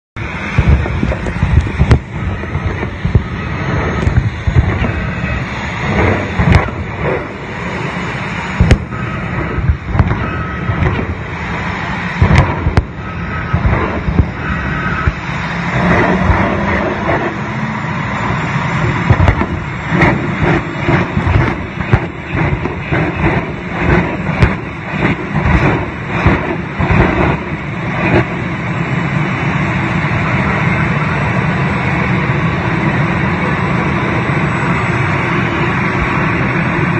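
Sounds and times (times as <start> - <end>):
jet engine running: 0.2 - 36.9
sharp pops and bangs: 0.5 - 7.4, 8.6 - 17.4, 18.3 - 28.5.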